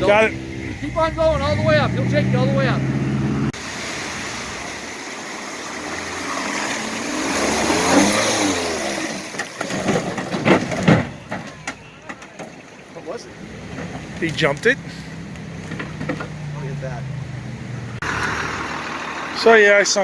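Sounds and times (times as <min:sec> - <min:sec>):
water rushing: 0:00.0 - 0:10.3
vehicle engine revving: 0:00.0 - 0:11.4, 0:13.3 - 0:20.0.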